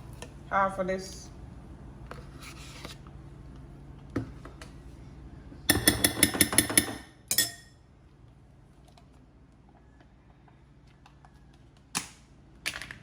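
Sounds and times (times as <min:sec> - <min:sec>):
spoon clinking against a bowl: 0:05.7 - 0:07.8.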